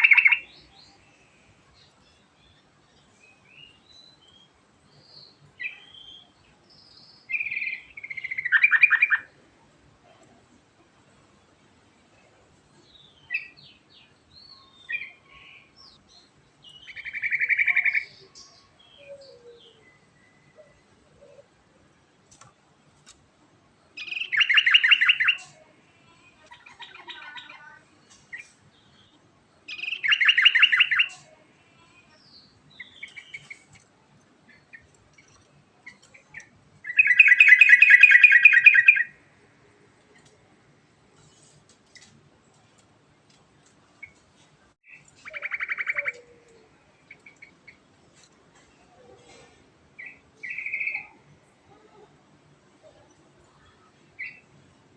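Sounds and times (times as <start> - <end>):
loud rapid bird trills: 0.0 - 0.6, 24.0 - 25.4, 29.7 - 31.2, 35.9 - 39.2, 44.9 - 46.3.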